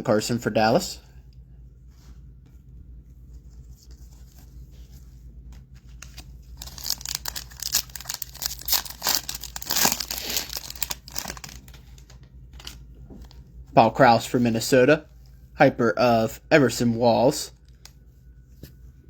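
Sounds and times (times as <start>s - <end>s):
foil wrapper tearing and crinkling: 6.0s - 12.8s.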